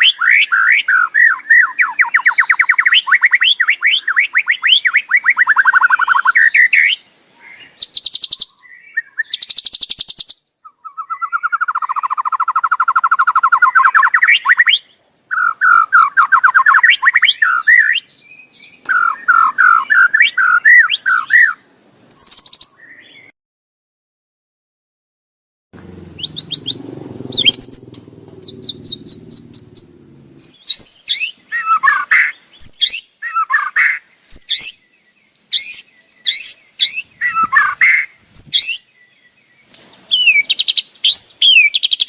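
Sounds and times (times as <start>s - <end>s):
bird giving rattling harsh call: 26.1s - 33.0s.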